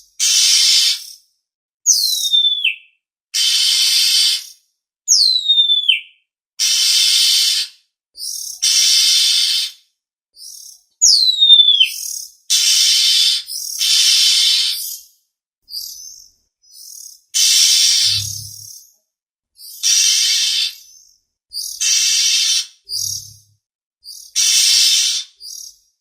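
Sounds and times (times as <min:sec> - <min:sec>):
harsh rasping bird calls: 0:00.2 - 0:01.2, 0:03.4 - 0:04.6, 0:06.6 - 0:09.8, 0:10.4 - 0:15.0, 0:15.7 - 0:18.8, 0:19.6 - 0:23.4, 0:24.1 - 0:25.8
bird whistle sliding down: 0:17.4 - 0:18.6.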